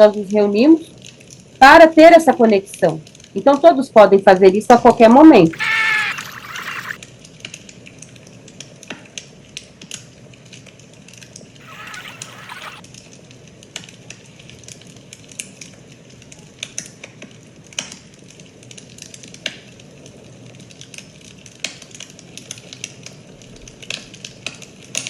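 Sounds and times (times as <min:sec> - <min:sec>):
fire crackling: 0:01.0 - 0:01.6, 0:05.6 - 0:25.0.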